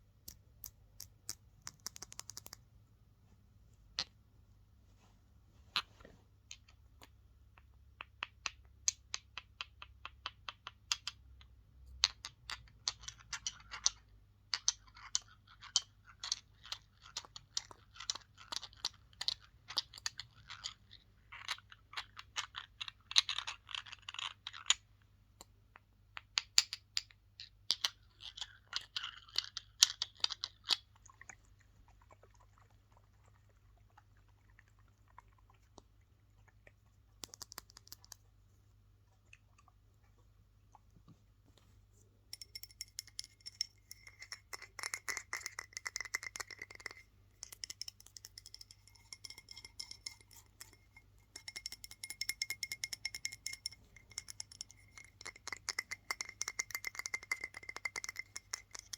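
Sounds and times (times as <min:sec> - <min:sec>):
fast tapping on small objects: 0:00.2 - 0:02.6, 0:37.2 - 0:38.2, 0:42.3 - 0:58.9.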